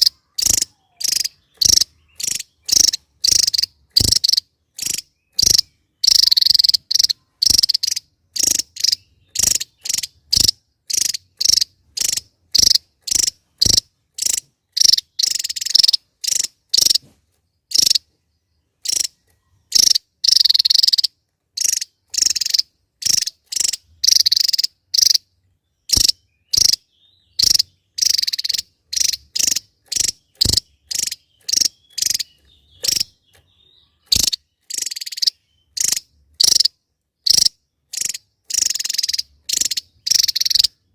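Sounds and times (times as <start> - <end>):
bird chirping and trilling: 0.0 - 40.9.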